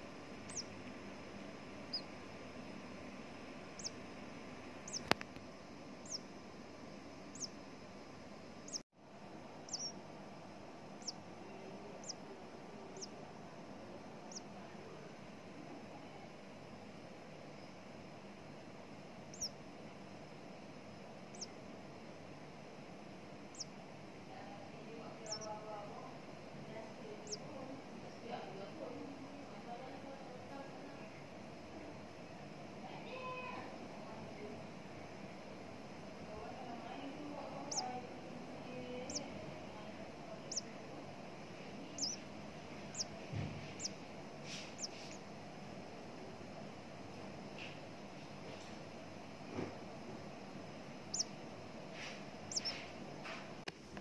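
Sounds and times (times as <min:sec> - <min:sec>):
nestling bird cheeping: 0:00.4 - 0:00.8, 0:01.8 - 0:02.2, 0:03.7 - 0:04.0, 0:04.8 - 0:05.1, 0:06.0 - 0:06.3, 0:07.3 - 0:07.6, 0:08.6 - 0:08.8, 0:09.6 - 0:10.0, 0:10.9 - 0:11.2, 0:11.9 - 0:12.3, 0:12.9 - 0:13.2, 0:14.2 - 0:14.6, 0:19.2 - 0:19.6, 0:21.2 - 0:21.6, 0:23.4 - 0:23.8, 0:25.1 - 0:25.7, 0:27.2 - 0:27.5, 0:37.5 - 0:38.0, 0:39.0 - 0:39.4, 0:40.3 - 0:40.8, 0:41.9 - 0:45.3, 0:51.0 - 0:51.4, 0:52.4 - 0:52.9.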